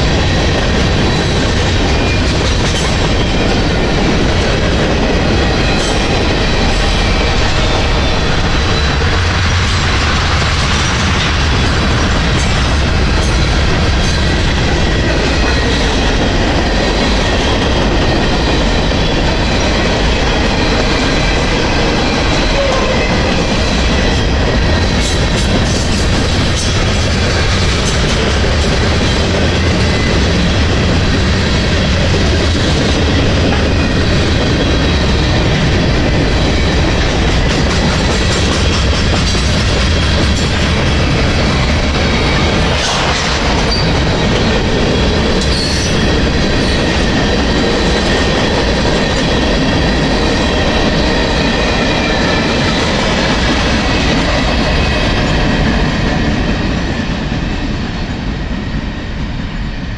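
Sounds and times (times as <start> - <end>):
high ring from train wheels: 0.0 - 32.0, 32.7 - 59.9
freight train cars rumbling past: 0.0 - 59.9.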